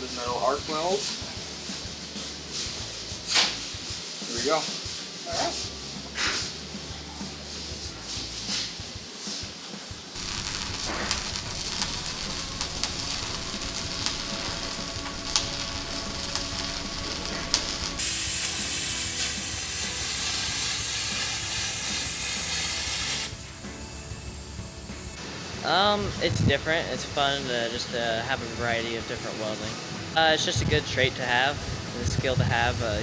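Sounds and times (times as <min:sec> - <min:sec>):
steady welding hiss: 0:00.0 - 0:33.0
welding arc crackling: 0:10.2 - 0:25.2.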